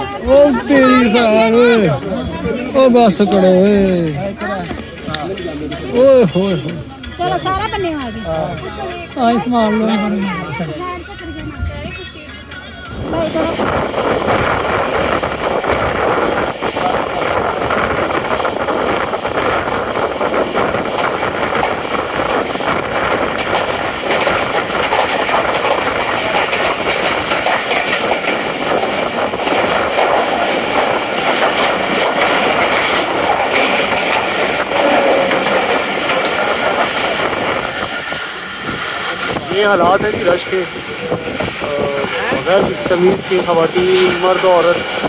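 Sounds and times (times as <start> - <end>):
train coach rumbling and clattering: 0.0 - 45.0.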